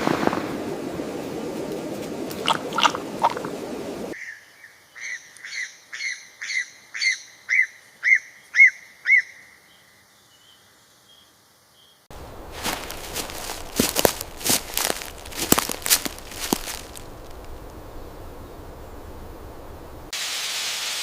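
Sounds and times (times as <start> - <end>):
crackling rustle: 0.0 - 4.2, 12.1 - 20.1.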